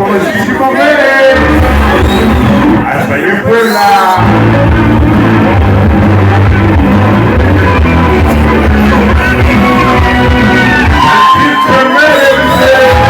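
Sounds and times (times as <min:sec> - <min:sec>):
loud music with heavy bass: 0:01.2 - 0:03.0, 0:04.2 - 0:13.0
person singing: 0:07.6 - 0:13.0.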